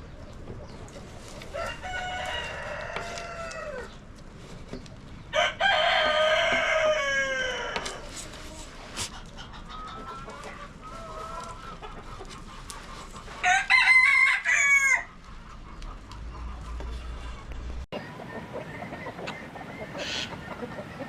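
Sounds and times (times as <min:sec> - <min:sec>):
chickens clucking quietly: 0:00.0 - 0:21.0
rooster crowing: 0:01.5 - 0:03.9, 0:05.3 - 0:08.0, 0:13.4 - 0:15.1.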